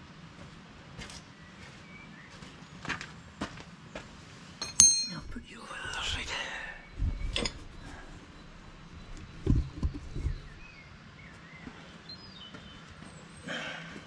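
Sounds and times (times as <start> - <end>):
faint bird chirping: 5.2 - 14.0.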